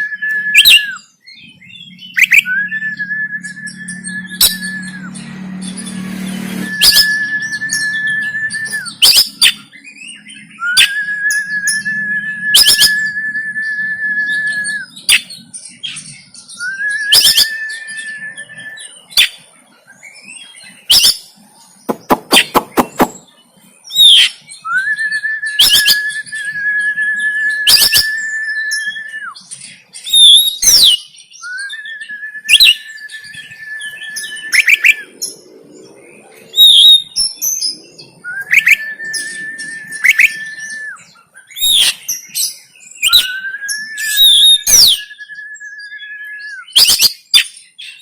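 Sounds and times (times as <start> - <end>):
bird whistling song: 0.0 - 48.0
bird harsh clicking notes: 21.9 - 23.3.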